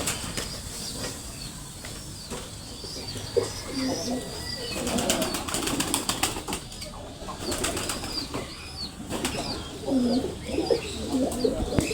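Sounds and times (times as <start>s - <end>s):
pigeons flapping wings: 4.8s - 6.8s, 7.4s - 8.2s.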